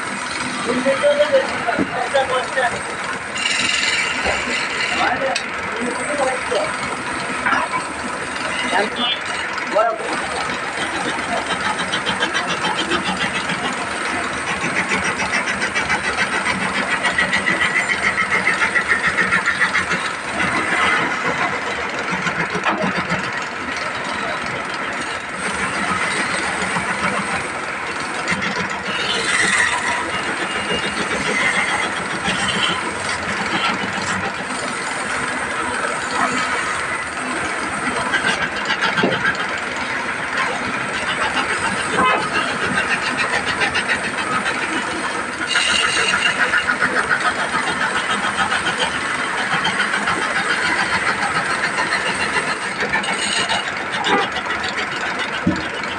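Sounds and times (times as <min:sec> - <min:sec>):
machine running with fine rattle: 0:00.0 - 0:55.9.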